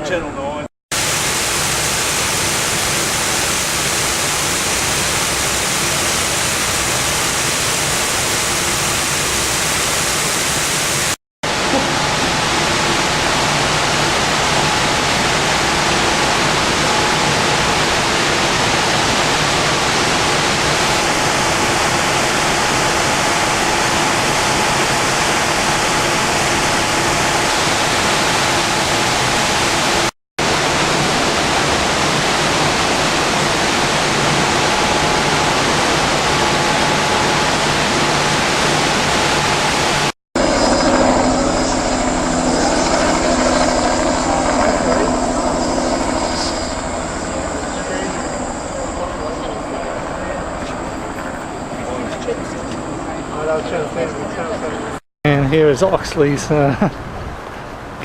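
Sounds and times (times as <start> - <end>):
floodwater rushing: 0.9 - 55.0
droning engine: 11.5 - 55.0.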